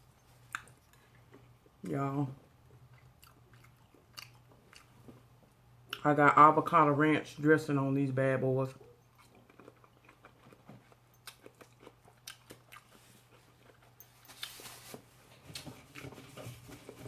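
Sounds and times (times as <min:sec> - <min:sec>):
person chewing food: 0:00.2 - 0:01.8, 0:02.5 - 0:06.1, 0:08.8 - 0:14.9.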